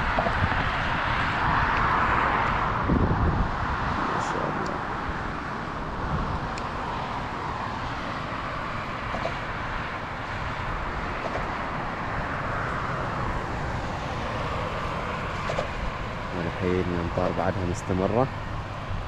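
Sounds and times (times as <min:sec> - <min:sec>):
engine and drivetrain rumble: 0:00.0 - 0:19.0
tyre and road noise: 0:00.0 - 0:19.0.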